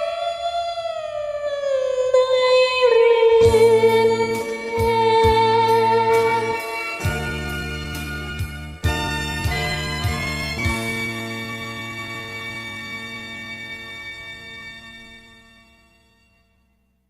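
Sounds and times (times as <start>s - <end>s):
person singing karaoke: 0.0s - 11.5s
backing track: 2.5s - 16.3s
low bass beat: 3.5s - 12.1s.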